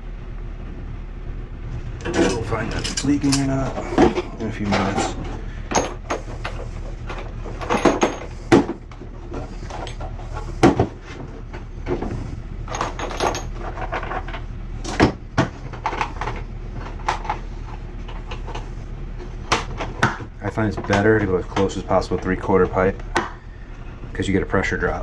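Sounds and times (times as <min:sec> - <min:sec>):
metal tools knocking and clinking: 0:02.0 - 0:08.3, 0:12.7 - 0:15.1.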